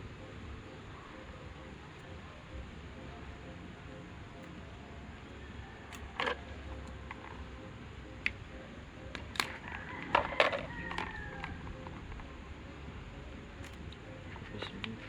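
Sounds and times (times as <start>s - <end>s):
low background hum: 0.0s - 15.0s
small tools clicking and tapping: 5.8s - 7.6s, 9.1s - 12.3s, 13.6s - 15.0s.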